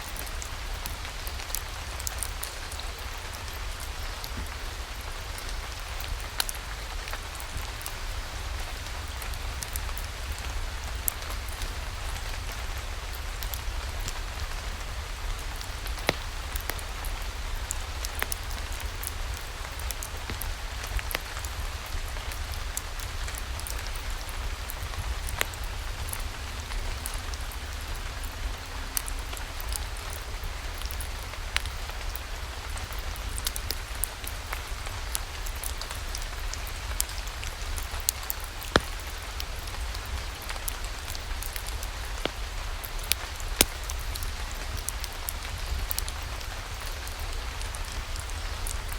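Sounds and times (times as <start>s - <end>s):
rain falling: 0.0s - 48.9s
raindrops clicking: 28.9s - 48.9s.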